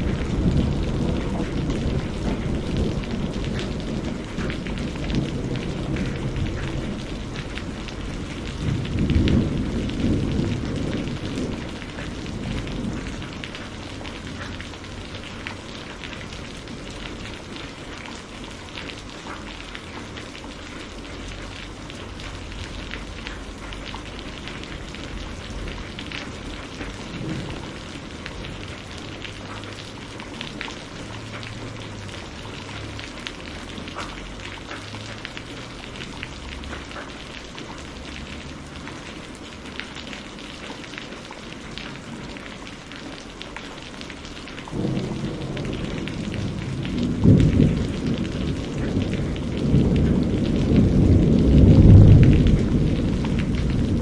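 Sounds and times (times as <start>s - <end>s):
thunder rumble: 0.0s - 18.7s, 19.3s - 36.9s, 44.7s - 54.0s
rain pattering: 0.0s - 54.0s.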